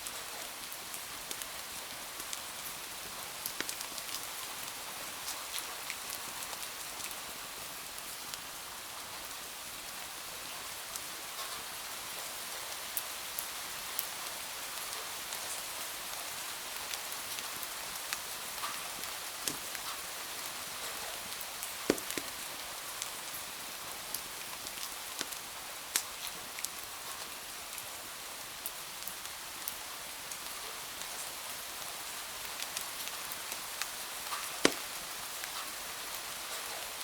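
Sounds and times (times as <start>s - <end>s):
sharp rain ticks: 0.0s - 7.2s, 16.8s - 23.5s, 24.1s - 27.8s, 32.5s - 36.9s
steady rain hiss: 0.0s - 37.0s.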